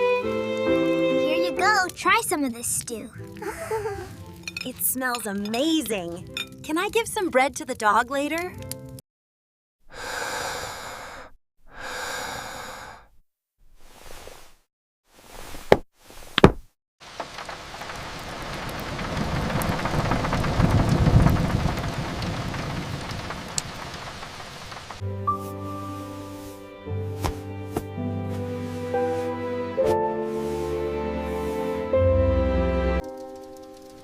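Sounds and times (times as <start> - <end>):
gentle music: 0.0 - 9.0, 25.0 - 34.0
soft breathy rushes: 10.0 - 13.2
rushing noise with low rumble: 17.1 - 25.0.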